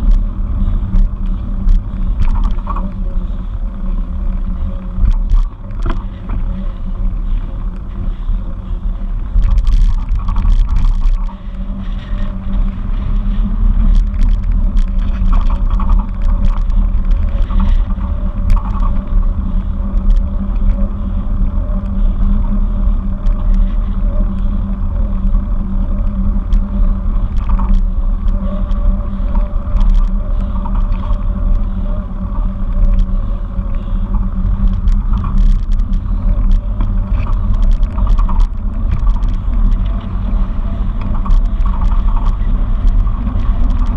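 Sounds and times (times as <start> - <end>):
bicycle road rumble: 0.0 - 43.9
small clicks and rattles: 0.0 - 43.9
wind buffeting microphone: 0.0 - 43.9.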